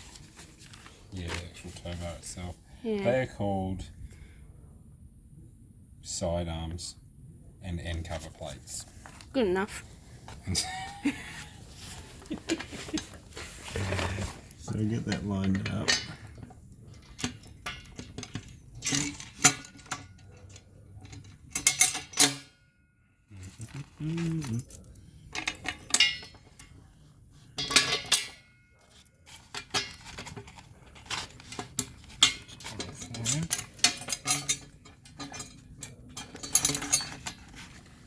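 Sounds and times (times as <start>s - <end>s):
metal parts clinking and knocking: 15.0s - 22.6s, 23.3s - 26.8s, 27.6s - 38.0s.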